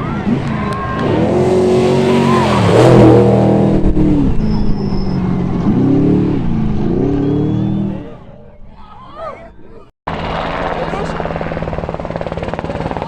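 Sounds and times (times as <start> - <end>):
race truck engine passing: 0.0 - 8.8.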